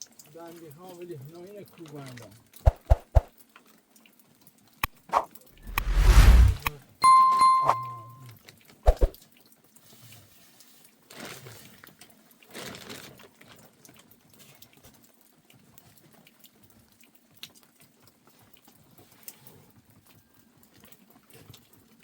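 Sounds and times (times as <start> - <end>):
faint water: 0.0 - 2.4.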